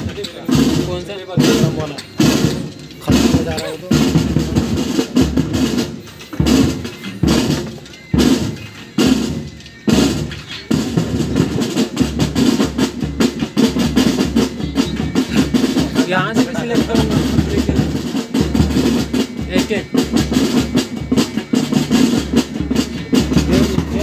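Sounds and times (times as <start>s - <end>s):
heavy drum strokes: 0.0s - 24.0s
rapid snare drumming: 0.0s - 24.0s.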